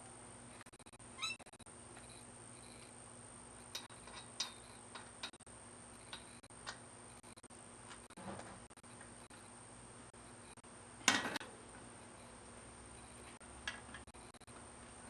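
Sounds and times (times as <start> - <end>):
thin high whine: 0.0 - 10.6, 11.4 - 13.4
wavering high squeak: 1.1 - 2.9.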